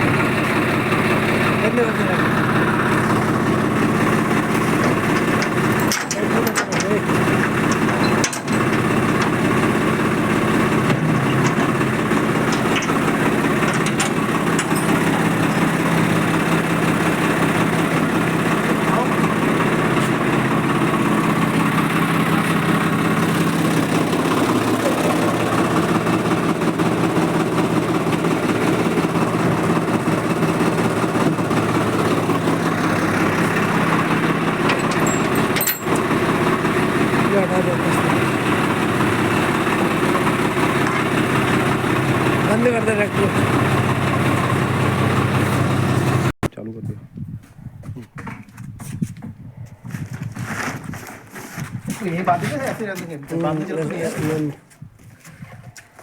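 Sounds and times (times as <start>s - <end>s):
tractor diesel engine idling: 0.0s - 46.4s.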